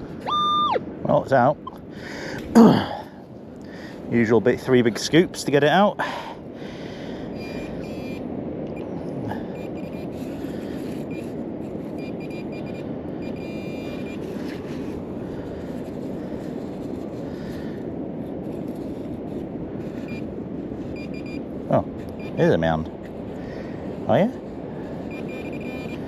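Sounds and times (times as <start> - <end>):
strong wind: 0.0 - 26.0
metal detector beeping: 0.2 - 0.8, 7.4 - 8.2, 9.6 - 10.3, 11.0 - 11.3, 12.0 - 14.3, 20.0 - 20.3, 20.9 - 21.5, 22.1 - 22.6, 25.0 - 26.0.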